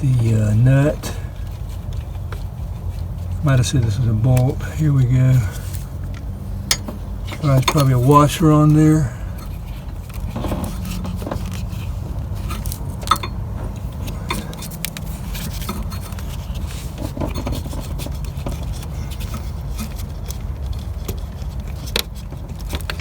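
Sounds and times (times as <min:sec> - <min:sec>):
metallic clicks and scrapes: 0:09.4 - 0:23.0.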